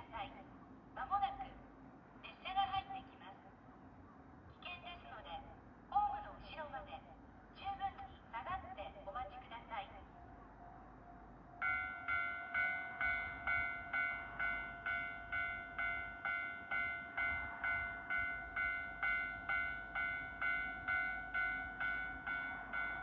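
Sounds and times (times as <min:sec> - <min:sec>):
electronic two-tone crossing bell: 0:11.6 - 0:23.0.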